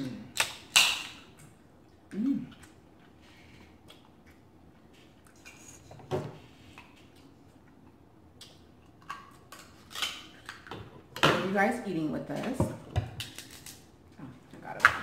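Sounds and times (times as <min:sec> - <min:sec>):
person humming: 0:02.1 - 0:02.6.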